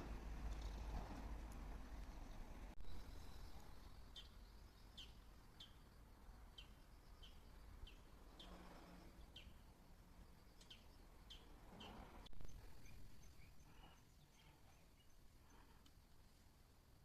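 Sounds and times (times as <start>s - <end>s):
low steady rumble: 0.0s - 16.5s.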